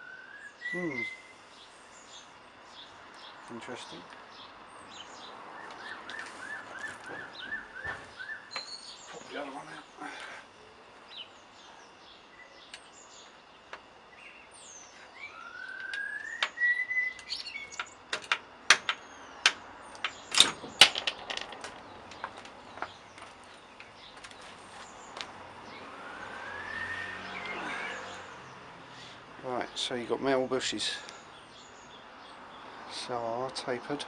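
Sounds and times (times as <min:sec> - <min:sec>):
rising whistled bird calls: 0:00.0 - 0:02.3, 0:05.8 - 0:09.2, 0:14.4 - 0:17.8, 0:26.0 - 0:28.3
birds chirping: 0:00.0 - 0:34.0
sharp metal clicks and knocks: 0:15.7 - 0:24.4.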